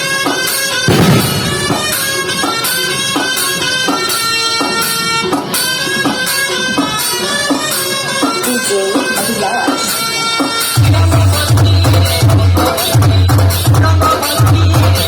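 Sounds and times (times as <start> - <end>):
reedy wind instrument melody: 0.0 - 11.9
steady drum beat: 0.9 - 3.4.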